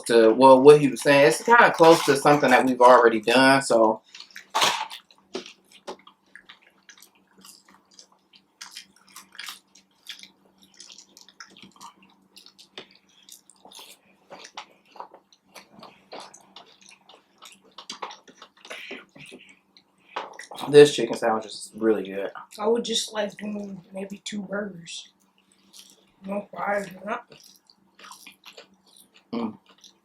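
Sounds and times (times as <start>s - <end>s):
chewing with wet mouth clicks: 4.0s - 20.7s, 25.0s - 26.2s, 26.8s - 30.0s.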